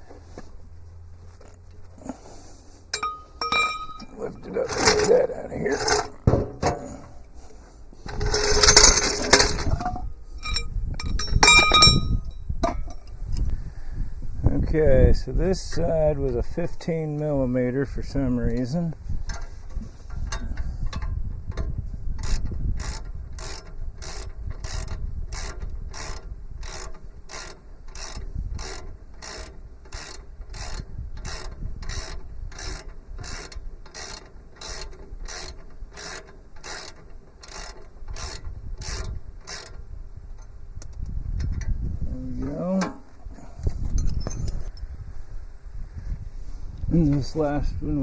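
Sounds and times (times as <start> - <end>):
ratchet wrench clicking: 8.1 - 12.1, 20.2 - 41.7.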